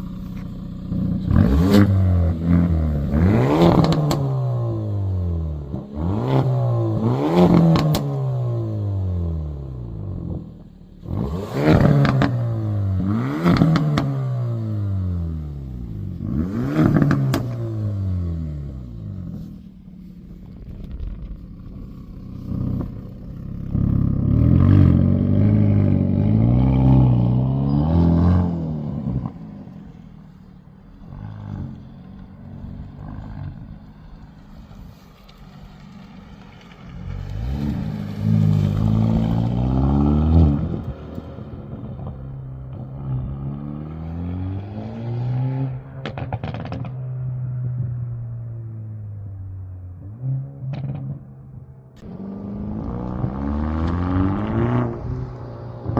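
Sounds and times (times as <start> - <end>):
exhaust cracks: 0.0 - 44.2, 45.6 - 55.9
car engine revving: 0.0 - 55.9.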